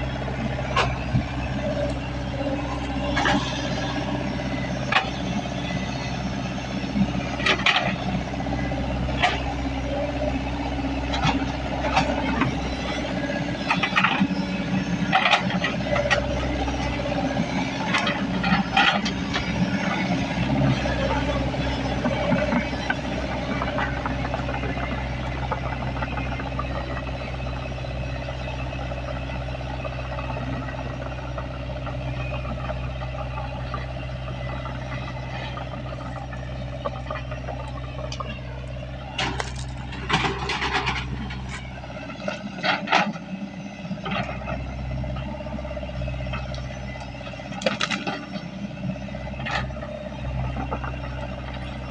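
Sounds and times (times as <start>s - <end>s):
excavator diesel engine running: 0.0s - 51.9s
metallic clanks and scrapes: 39.2s - 41.7s.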